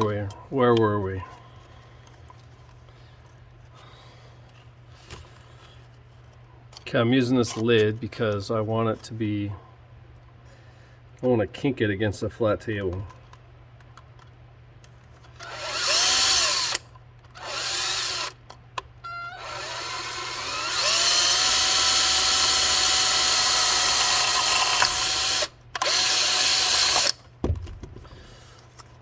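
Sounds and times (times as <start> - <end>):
electric drill whining: 15.4 - 16.8, 17.4 - 18.4, 19.1 - 27.2.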